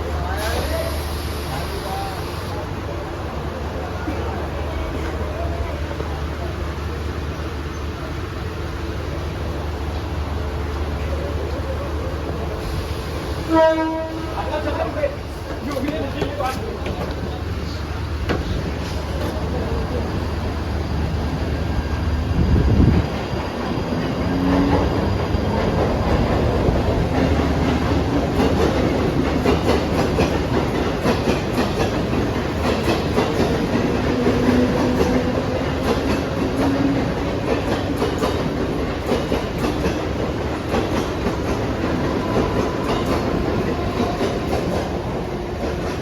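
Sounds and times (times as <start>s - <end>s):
faint train whine: 0.0s - 46.0s
train wheels clicking over rail joints: 22.8s - 46.0s.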